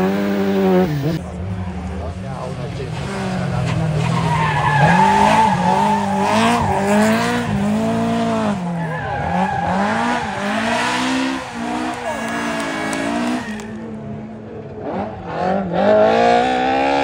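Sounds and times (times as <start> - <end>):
car engine revving hard: 0.0 - 1.2, 3.0 - 13.8, 14.8 - 17.0
tyre squeal: 8.6 - 13.9.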